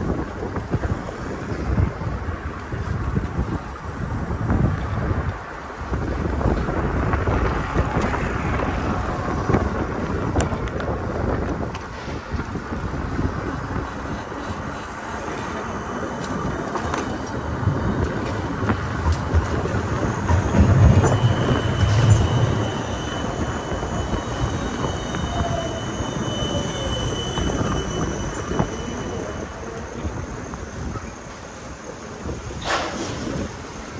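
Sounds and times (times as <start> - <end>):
wind on microphone: 0.0 - 31.2
traffic noise: 0.0 - 33.9
low rumble: 17.4 - 25.1.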